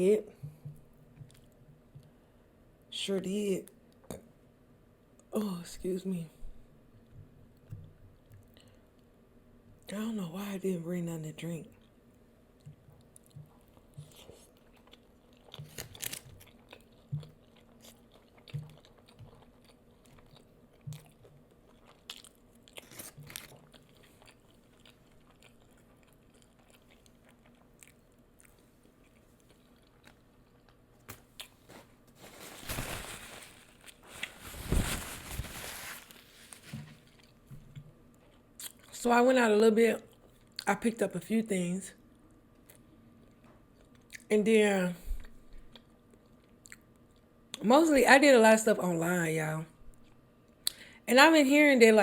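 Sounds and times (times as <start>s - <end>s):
crunching crispy food: 14.0s - 37.4s.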